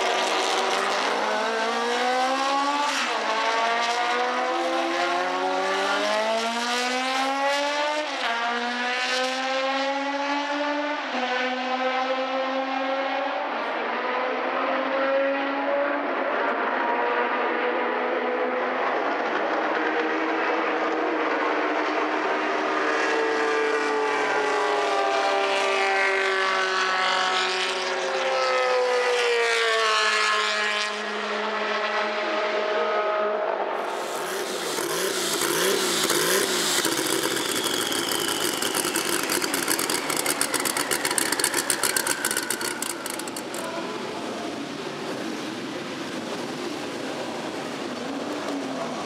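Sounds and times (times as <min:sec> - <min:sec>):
racing car engines passing: 0:00.0 - 0:49.0
harsh bright engine crackling: 0:33.8 - 0:48.9.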